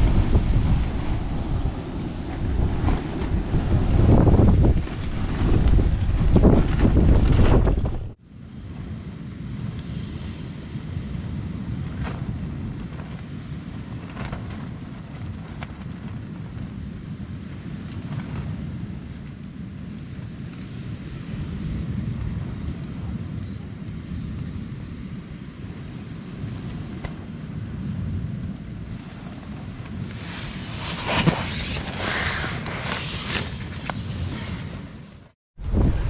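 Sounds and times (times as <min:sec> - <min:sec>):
surf on rocks: 0:00.0 - 0:07.8, 0:29.0 - 0:35.4
strong wind: 0:00.0 - 0:36.0
insect chirping: 0:08.2 - 0:35.1.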